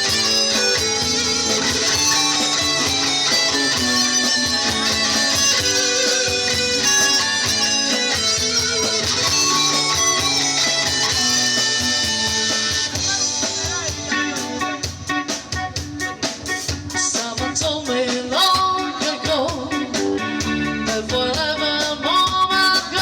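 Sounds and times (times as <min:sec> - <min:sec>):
steady beat: 0:00.0 - 0:22.5
bass: 0:00.0 - 0:23.0
electric guitar: 0:00.0 - 0:23.0
strummed guitar: 0:00.0 - 0:23.0.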